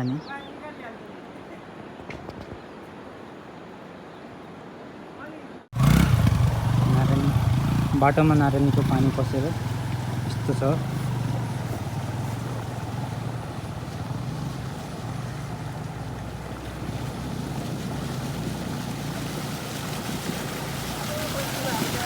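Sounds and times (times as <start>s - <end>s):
motorcycle engine running: 5.8s - 22.0s.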